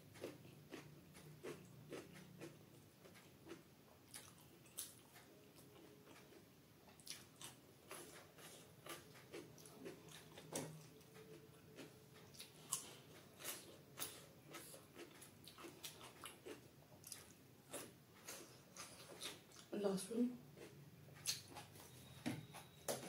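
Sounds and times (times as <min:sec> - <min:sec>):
close chewing and biting: 0:07.0 - 0:19.7.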